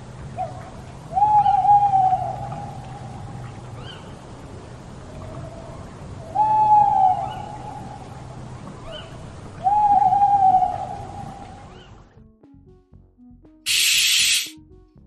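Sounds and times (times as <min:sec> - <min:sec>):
long hooting calls: 0:00.4 - 0:04.1, 0:05.1 - 0:12.0
faint chirping calls: 0:05.2 - 0:12.1.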